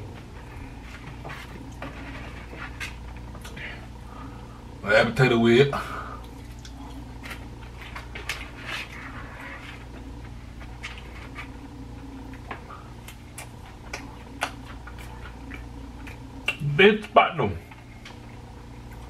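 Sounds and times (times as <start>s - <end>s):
steady low hum: 0.0s - 19.0s
person chewing: 6.2s - 9.1s, 9.8s - 16.6s.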